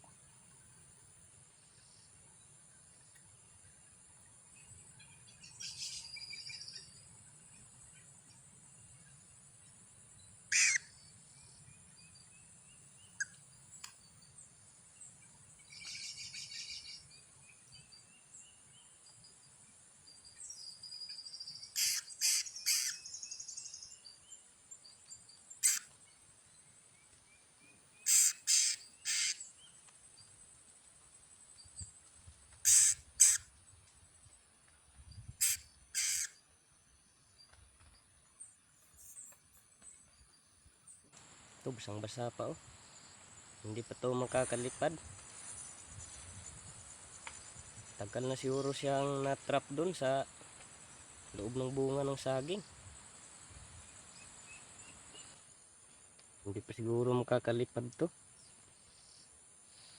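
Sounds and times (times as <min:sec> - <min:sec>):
bird trilling songs: 0:05.0 - 0:07.0, 0:10.5 - 0:13.4, 0:15.6 - 0:18.9, 0:20.3 - 0:26.6, 0:27.7 - 0:29.8, 0:32.6 - 0:33.5, 0:35.1 - 0:36.4
birds calling: 0:10.5 - 0:10.9, 0:21.6 - 0:24.0, 0:25.5 - 0:26.1, 0:28.0 - 0:29.8, 0:32.6 - 0:33.4, 0:35.4 - 0:36.4
high-pitched insect drone: 0:21.8 - 0:23.0, 0:28.1 - 0:29.4, 0:32.7 - 0:33.4, 0:35.4 - 0:36.4.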